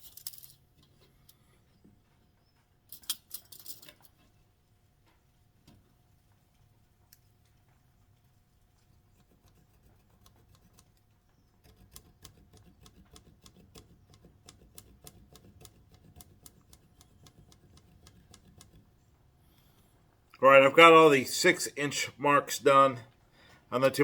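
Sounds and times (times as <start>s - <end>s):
light clicks and taps on wood: 11.6s - 18.9s.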